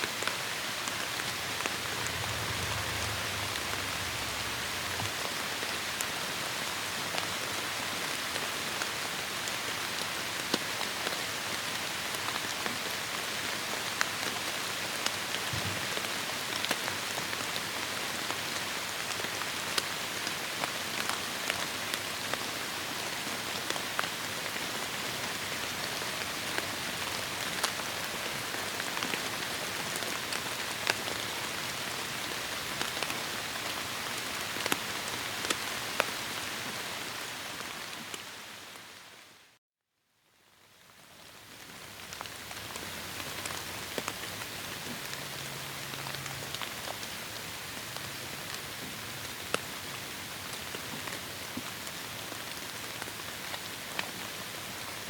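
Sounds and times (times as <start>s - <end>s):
heavy rain hiss: 0.0s - 9.6s
raindrops striking nearby: 0.1s - 7.3s.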